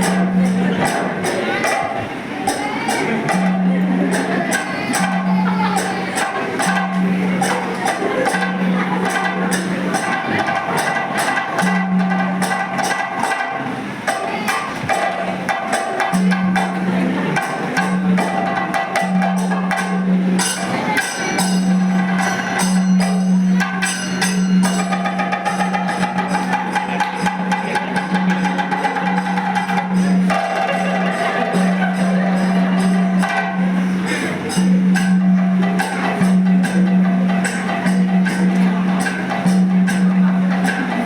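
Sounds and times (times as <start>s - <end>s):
rapid jingling percussion: 0.0s - 41.0s
low held tone: 16.2s - 41.0s.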